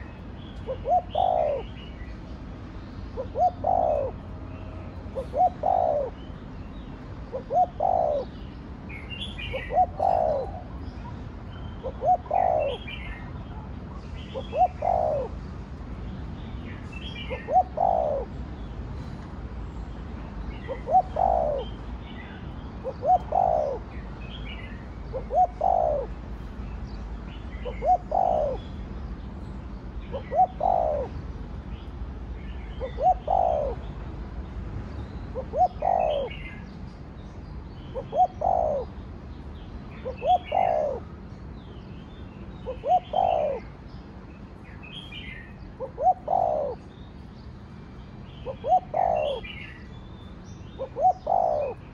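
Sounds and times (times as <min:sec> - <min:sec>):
dove cooing: 0:00.0 - 0:02.2, 0:03.2 - 0:06.3, 0:07.3 - 0:08.4, 0:09.4 - 0:11.1, 0:11.8 - 0:15.4, 0:17.2 - 0:18.4, 0:20.7 - 0:21.8, 0:22.8 - 0:24.0, 0:25.0 - 0:26.2, 0:27.6 - 0:28.6, 0:30.1 - 0:31.2, 0:32.8 - 0:33.8, 0:35.4 - 0:36.6, 0:37.9 - 0:39.0, 0:40.0 - 0:41.1, 0:42.6 - 0:43.7, 0:45.8 - 0:46.9, 0:48.4 - 0:49.8, 0:50.8 - 0:51.9.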